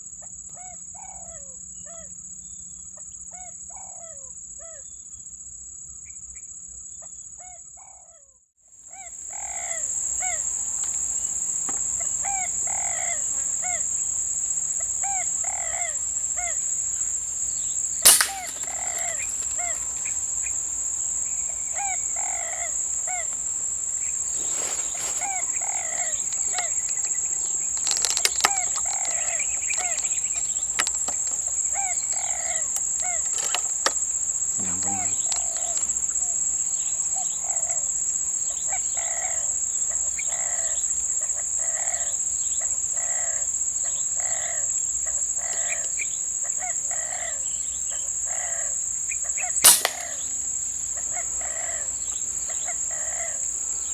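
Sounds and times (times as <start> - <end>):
high-pitched insect drone: 9.3 - 53.9
birds calling in falling notes: 15.8 - 36.0, 49.6 - 50.3
sharp crack: 18.0 - 20.2, 49.6 - 50.2.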